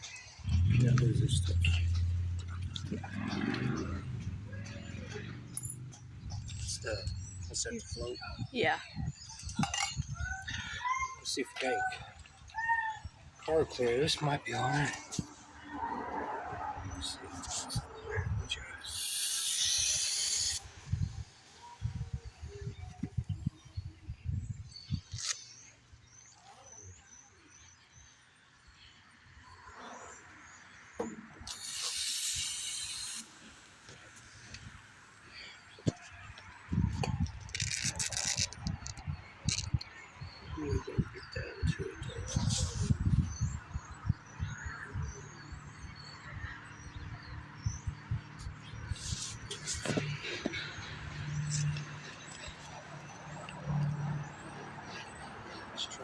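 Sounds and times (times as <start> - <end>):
birds chirping faintly: 0.0 - 56.0
aerosol spray hissing: 18.8 - 20.7, 31.5 - 33.6.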